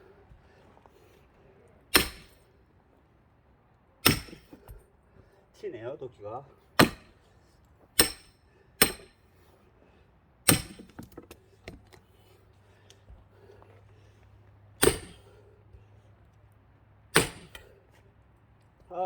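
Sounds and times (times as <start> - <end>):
sledgehammer clanging on axe: 1.9 - 2.4, 4.0 - 4.8, 6.8 - 7.2, 8.0 - 9.2, 10.5 - 11.4, 14.8 - 15.4, 17.1 - 17.7.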